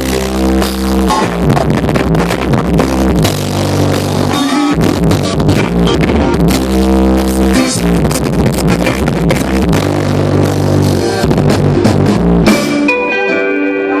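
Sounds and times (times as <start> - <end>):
band playing: 0.0 - 14.0
held guitar chord ringing: 12.4 - 14.0.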